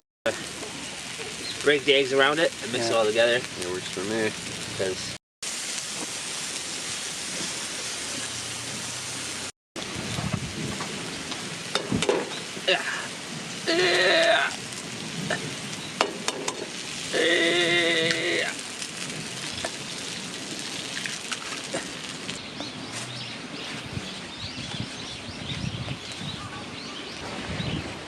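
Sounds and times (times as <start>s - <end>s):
food sizzling in a pan: 0.3s - 22.4s.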